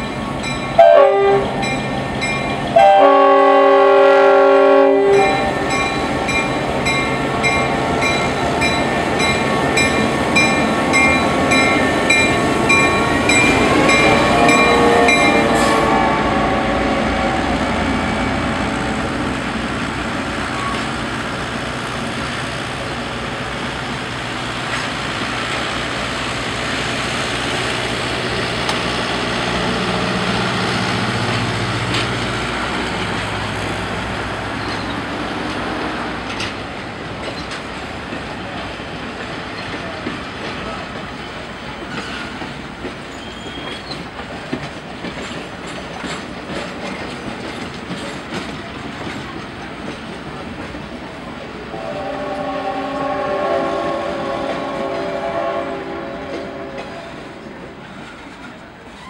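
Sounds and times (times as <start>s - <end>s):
crossing bell ringing: 0.0s - 3.1s, 5.0s - 16.0s
diesel locomotive passing: 0.0s - 59.0s
train cars rumbling on rails: 0.0s - 59.0s
locomotive air horn blast: 0.8s - 1.7s, 2.7s - 5.6s, 13.6s - 17.3s, 51.7s - 57.6s.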